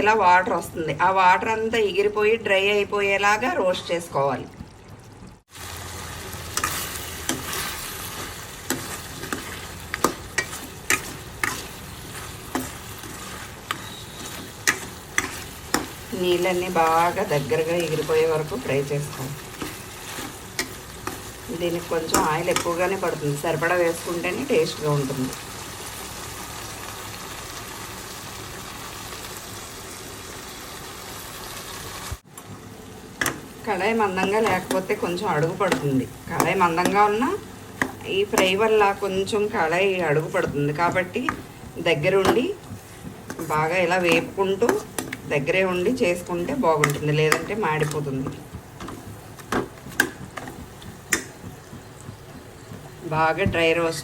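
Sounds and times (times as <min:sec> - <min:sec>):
chicken sizzling in oil: 0:05.4 - 0:53.9
spatula scraping and knocking pan: 0:06.5 - 0:23.7, 0:33.2 - 0:54.0.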